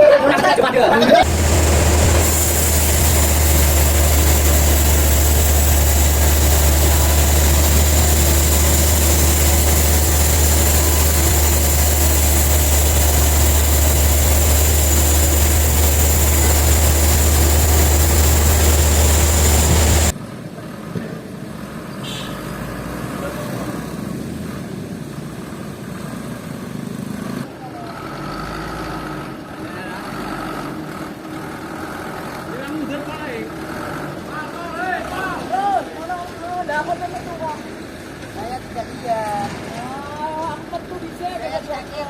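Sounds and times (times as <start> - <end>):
high whine: 1.2 - 20.2
sawmill machinery humming: 1.2 - 20.2.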